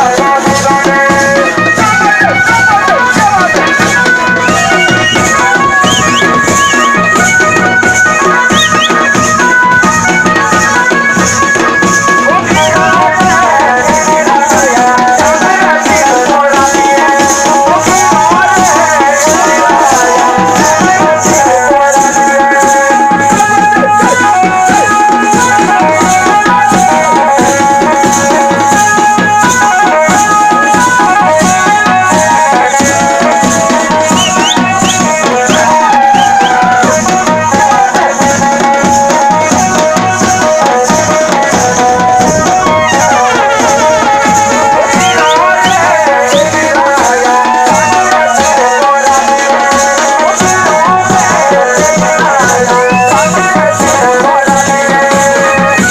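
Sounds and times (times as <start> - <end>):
fast drum beat: 0.0 - 55.9
rattling percussion: 0.0 - 55.9
bending melody line: 0.8 - 15.2, 17.6 - 28.0, 39.5 - 49.3.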